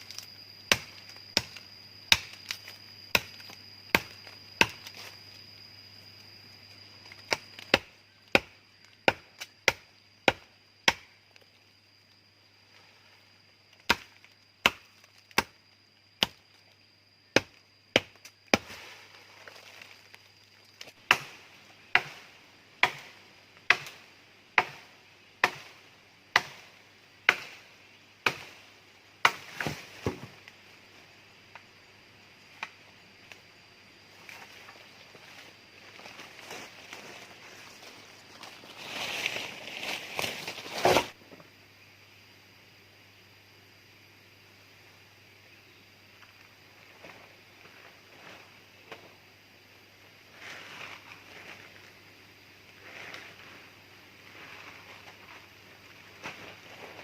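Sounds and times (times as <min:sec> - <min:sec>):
blade chopping wood: 0:00.7 - 0:05.0, 0:23.7 - 0:24.0.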